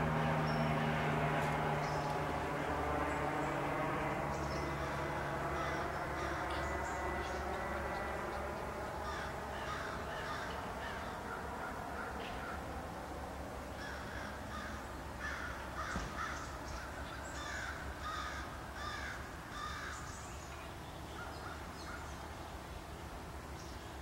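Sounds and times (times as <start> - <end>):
steady low hum: 0.0 - 24.0
bird calling: 4.4 - 12.6, 13.8 - 22.3.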